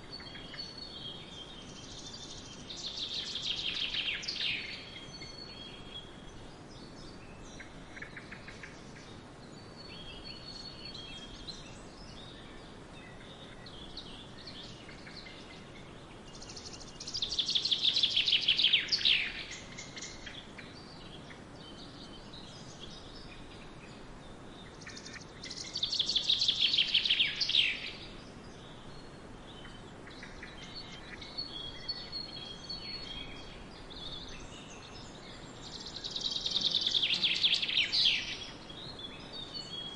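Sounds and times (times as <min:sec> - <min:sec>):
birds chirping and whistling: 0:06.7 - 0:39.9.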